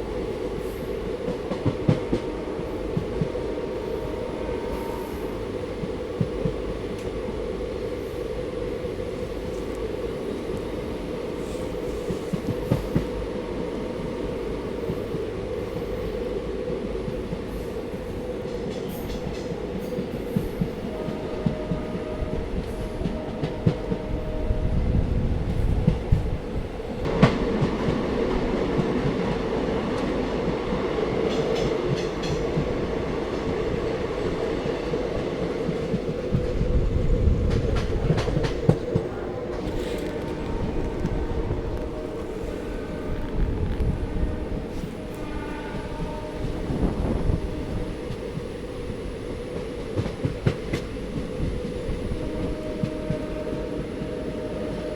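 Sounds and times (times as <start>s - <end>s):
train rumbling on rails: 0.0s - 54.9s.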